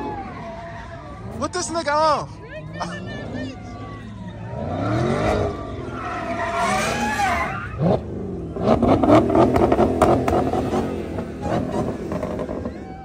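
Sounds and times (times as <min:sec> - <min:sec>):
car engine revving hard: 0:04.5 - 0:12.7.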